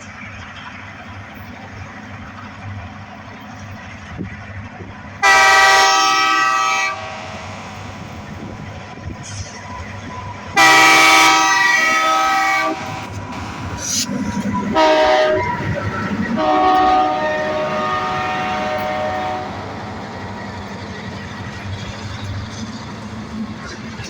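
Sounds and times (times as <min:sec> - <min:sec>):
moving train rumble: 0:00.0 - 0:24.0
locomotive air horn blasts: 0:05.2 - 0:07.5, 0:10.6 - 0:13.1, 0:14.7 - 0:15.7, 0:16.3 - 0:19.7.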